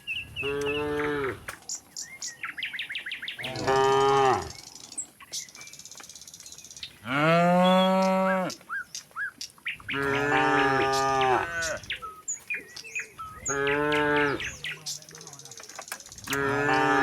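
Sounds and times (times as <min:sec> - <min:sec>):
cattle mooing: 0:00.4 - 0:01.5, 0:03.4 - 0:04.6, 0:09.9 - 0:11.9, 0:13.4 - 0:14.6, 0:16.3 - 0:17.0.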